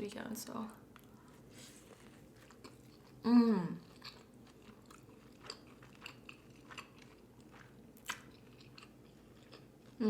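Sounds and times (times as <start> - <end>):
person chewing food: 0.9 - 10.0
person humming: 3.2 - 3.8.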